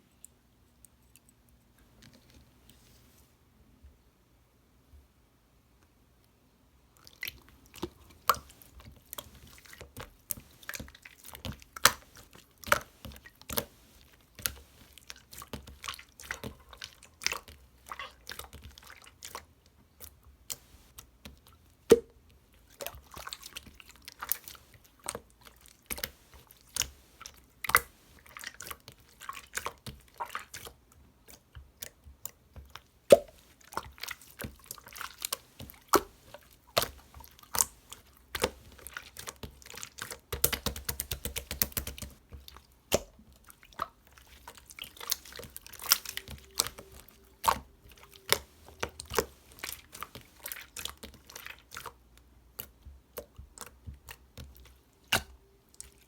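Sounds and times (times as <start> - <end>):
slime squeezed by hand: 43.7 - 51.9.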